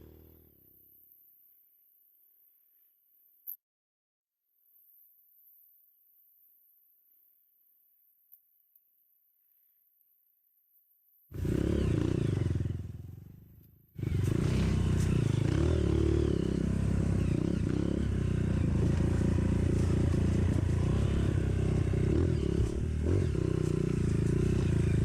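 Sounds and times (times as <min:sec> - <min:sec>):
motorcycle engine running: 0:00.0 - 0:00.8, 0:11.3 - 0:25.0.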